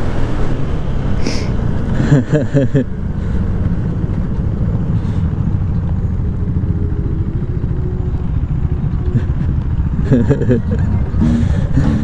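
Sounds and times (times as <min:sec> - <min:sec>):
motorcycle engine rumbling: 0:03.0 - 0:12.0.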